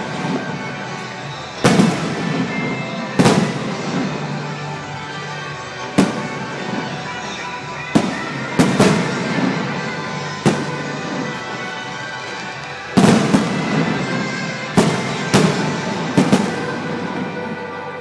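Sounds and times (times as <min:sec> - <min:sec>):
fireworks bursting: 0:00.0 - 0:18.0
music playing: 0:00.0 - 0:18.0.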